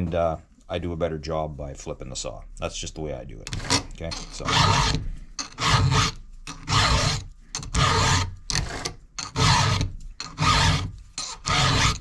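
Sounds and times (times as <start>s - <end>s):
file rasping on chainsaw chain: 3.5s - 12.0s.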